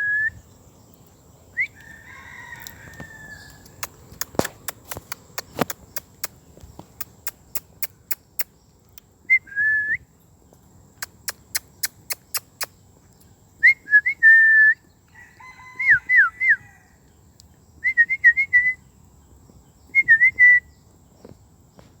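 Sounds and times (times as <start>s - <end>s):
whistled calls with pitch glides: 0.0s - 0.4s, 20.0s - 20.7s
sharp evenly spaced clicks: 3.6s - 9.1s.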